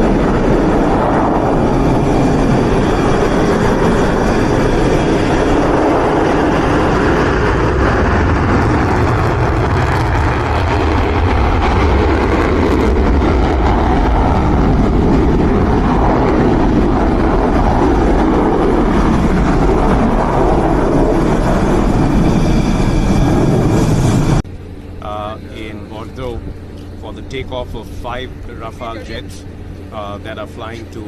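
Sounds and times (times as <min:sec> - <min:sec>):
jet engines rumbling: 0:00.0 - 0:31.0.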